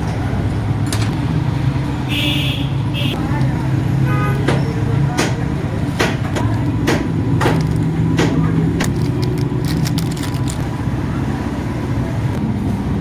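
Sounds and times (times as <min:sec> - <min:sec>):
passing traffic drone: 0:00.0 - 0:05.9
hand tools clicking and knocking: 0:04.3 - 0:10.6.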